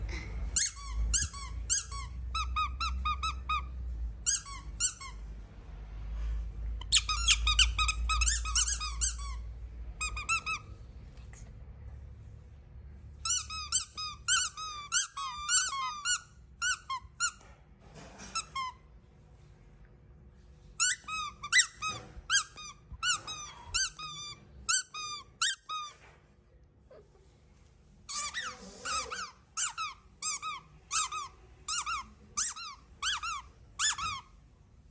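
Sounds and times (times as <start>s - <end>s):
squeaky toys squeaking: 0.6s - 5.2s, 6.8s - 9.4s, 10.0s - 10.7s, 13.2s - 17.4s, 20.8s - 26.0s, 28.1s - 34.4s.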